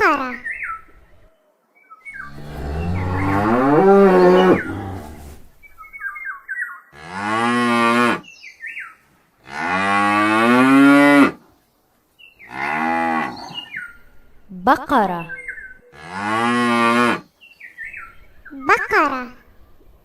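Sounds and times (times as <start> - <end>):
cow mooing: 2.2 - 5.3, 15.9 - 17.2.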